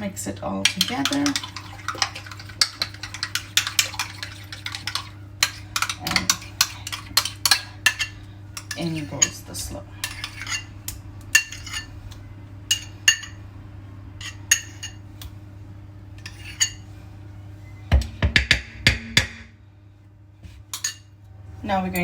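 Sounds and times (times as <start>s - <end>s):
steady low hum: 0.0s - 22.0s
utensil clinking against bowl: 0.6s - 10.7s, 12.7s - 13.4s.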